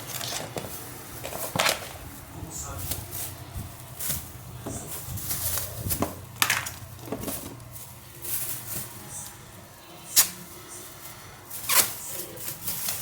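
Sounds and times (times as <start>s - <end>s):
potatoes rustling and knocking: 0.0s - 9.6s.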